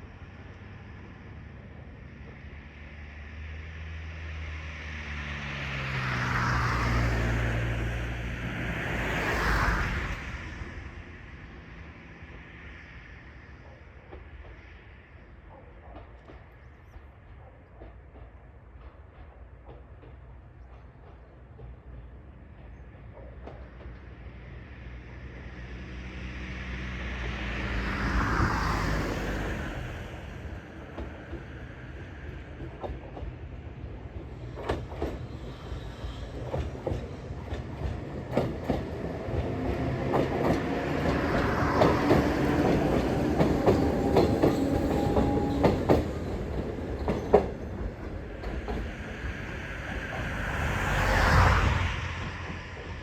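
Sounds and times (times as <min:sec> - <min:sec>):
electric train passing: 0:00.0 - 0:53.0
train wheel noise: 0:00.0 - 0:53.0
vehicle passing by: 0:02.9 - 0:11.3, 0:25.7 - 0:30.5, 0:47.8 - 0:53.0.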